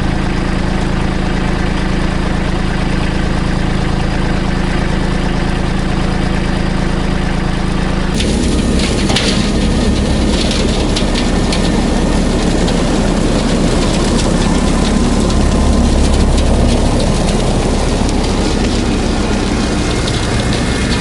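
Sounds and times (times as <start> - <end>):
tractor diesel engine running: 0.0 - 21.0
branches cracking and snapping: 8.2 - 21.0.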